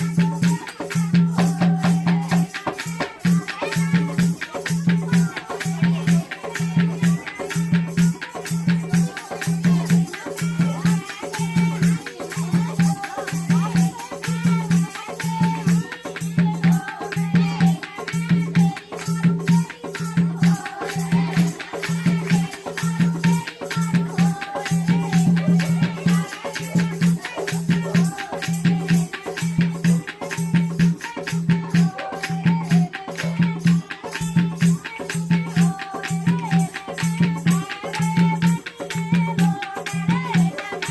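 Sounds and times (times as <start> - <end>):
jingling rattle percussion: 0.0 - 40.9.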